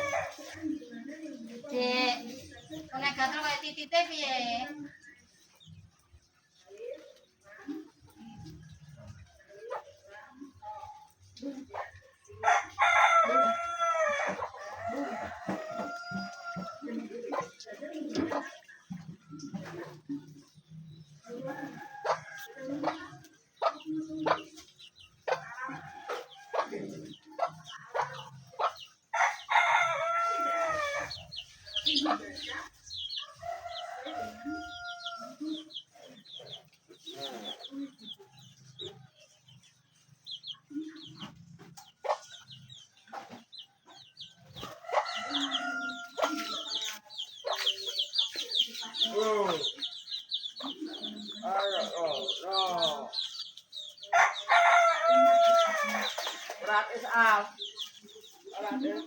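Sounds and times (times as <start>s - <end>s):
chickens clucking: 0.0s - 59.0s
rooster crowing: 12.4s - 16.8s, 29.2s - 31.2s, 44.9s - 46.8s, 54.1s - 56.1s.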